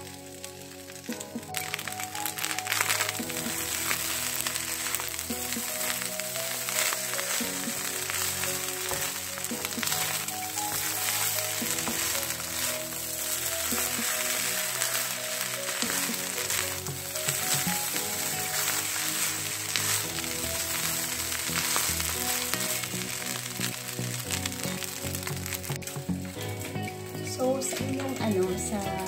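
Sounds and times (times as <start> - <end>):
background music: 0.0 - 29.0
rice sizzling in a wok: 0.0 - 29.0
spatula stirring in a wok: 2.7 - 25.8.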